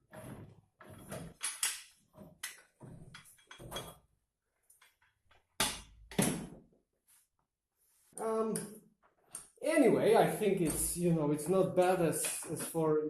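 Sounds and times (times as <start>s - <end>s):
metal clanks and scrapes: 0.1s - 4.0s.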